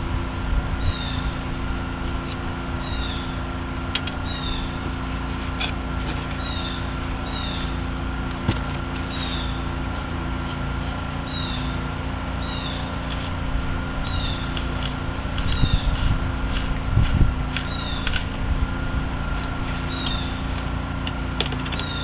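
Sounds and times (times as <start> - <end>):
steady hum: 0.0 - 22.0
bird chirping: 4.2 - 4.8, 9.1 - 9.6, 11.3 - 11.8, 12.4 - 12.9, 14.0 - 14.6, 17.6 - 18.1, 19.9 - 20.4.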